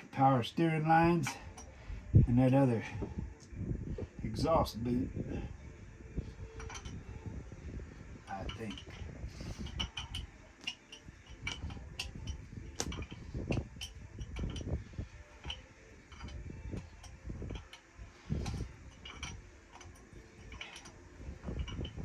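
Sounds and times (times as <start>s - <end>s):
hand tools clicking on metal: 8.3s - 14.7s, 15.3s - 22.0s.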